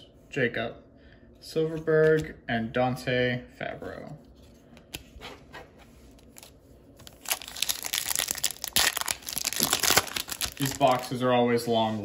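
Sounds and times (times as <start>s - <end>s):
foil wrapper tearing and crinkling: 6.3s - 11.1s.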